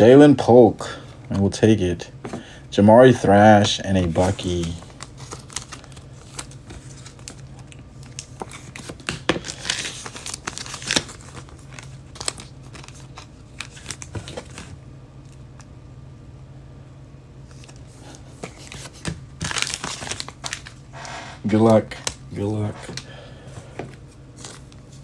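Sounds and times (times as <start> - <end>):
low steady hum: 0.0 - 25.0
foil wrappers crinkling and tearing: 4.0 - 14.7, 17.5 - 25.0.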